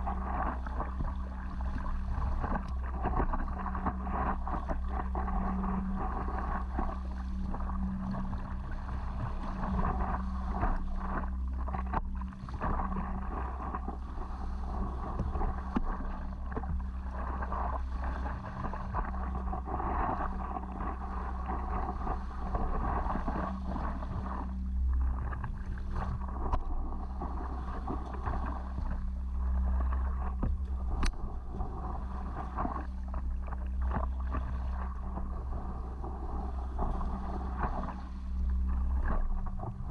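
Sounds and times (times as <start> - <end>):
water splashing against paddleboard: 0.0 - 39.9
wind rumble on microphone: 0.0 - 39.9
faint click: 30.4 - 31.2.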